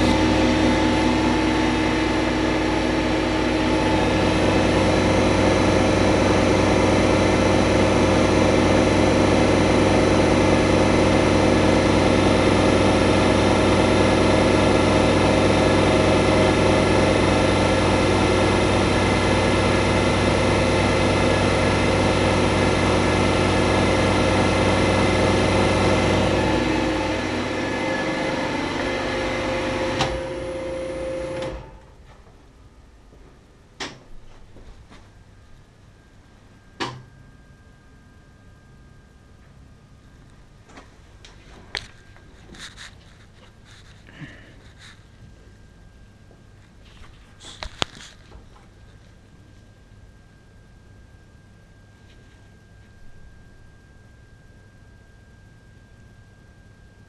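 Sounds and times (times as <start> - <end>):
vacuum cleaner running: 0.0 - 31.9.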